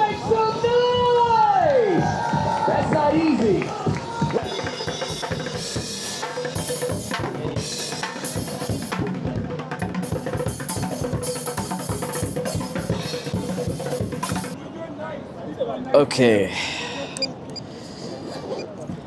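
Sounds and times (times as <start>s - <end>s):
fast drumming: 3.8s - 14.6s.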